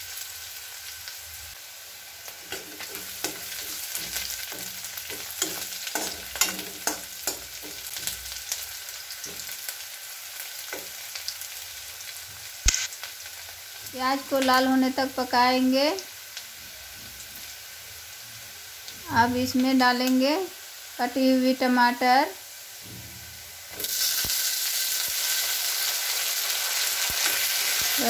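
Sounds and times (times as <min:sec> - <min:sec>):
onion and spices sizzling in oil: 0:00.0 - 0:28.0
metal spatula scraping pan: 0:02.4 - 0:08.6.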